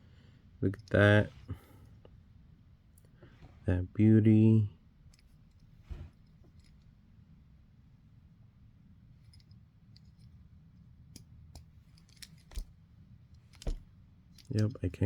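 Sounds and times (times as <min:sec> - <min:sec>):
faint low hum: 0:00.0 - 0:15.0
handling small toy car: 0:09.3 - 0:10.4, 0:11.2 - 0:12.8, 0:13.4 - 0:14.8.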